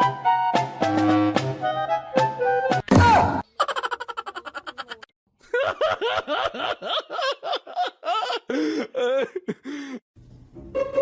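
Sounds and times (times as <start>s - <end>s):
person laughing: 3.5s - 10.0s.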